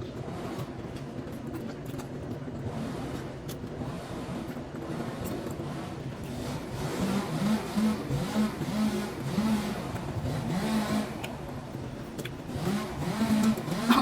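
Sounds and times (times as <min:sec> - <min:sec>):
motor revving: 0:05.0 - 0:11.6, 0:12.2 - 0:14.0.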